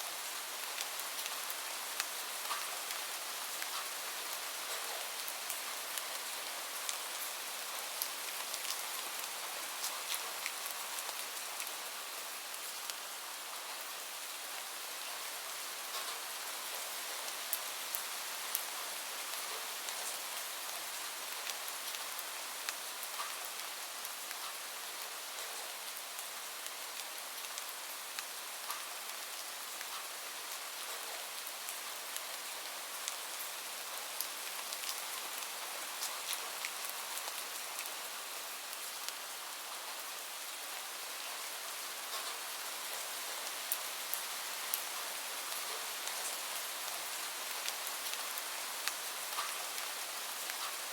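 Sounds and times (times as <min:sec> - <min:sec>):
steady rain: 0:00.0 - 0:50.9.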